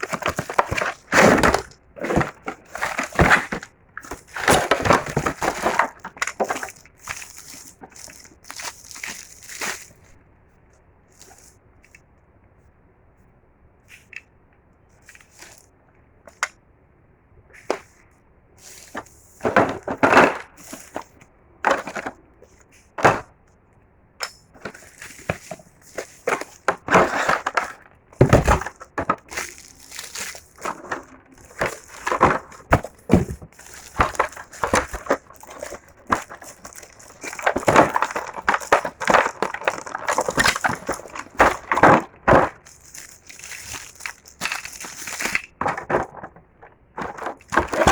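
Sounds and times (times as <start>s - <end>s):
packaging crinkling and tearing: 0.0s - 10.0s, 24.6s - 46.3s, 47.0s - 47.9s.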